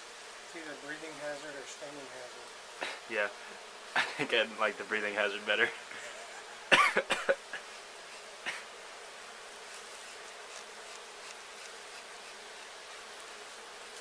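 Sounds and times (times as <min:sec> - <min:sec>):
bees buzzing: 0:00.0 - 0:14.0.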